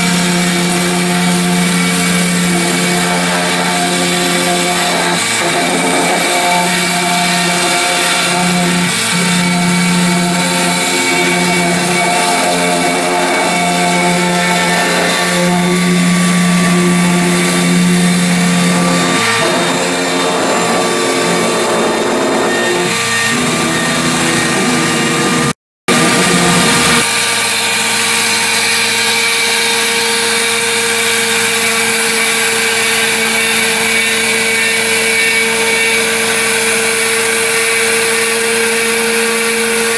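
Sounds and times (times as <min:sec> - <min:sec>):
machine motors whining: 0:00.0 - 0:28.5.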